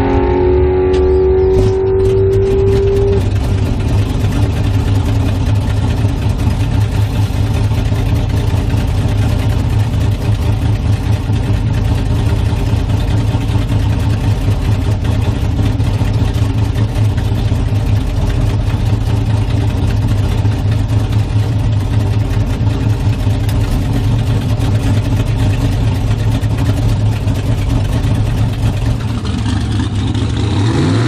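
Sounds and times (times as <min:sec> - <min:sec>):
high whine: 0:00.0 - 0:05.1
car engine idling: 0:00.0 - 0:30.9.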